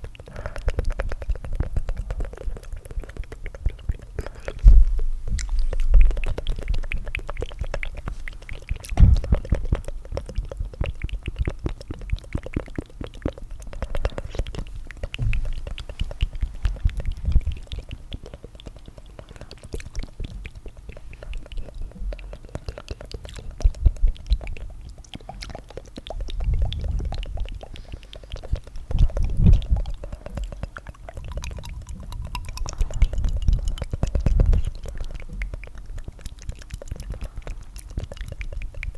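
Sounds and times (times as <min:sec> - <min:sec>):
wet tongue fluttering clicks: 0:00.0 - 0:38.9
air pushed onto microphone: 0:26.4 - 0:30.4.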